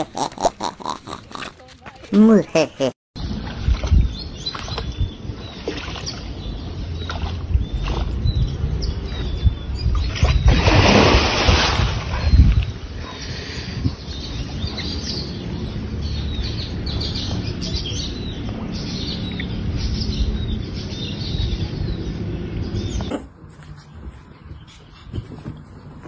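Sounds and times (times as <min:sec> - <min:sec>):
birds chirping: 0:03.2 - 0:26.0.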